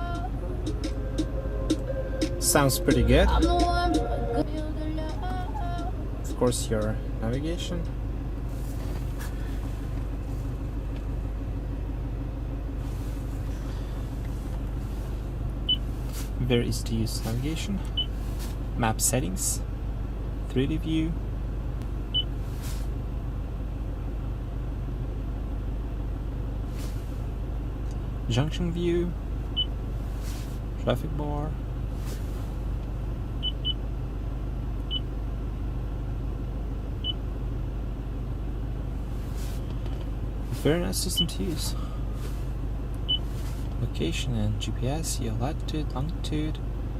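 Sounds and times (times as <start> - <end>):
diesel engine idling: 0.0 - 46.9.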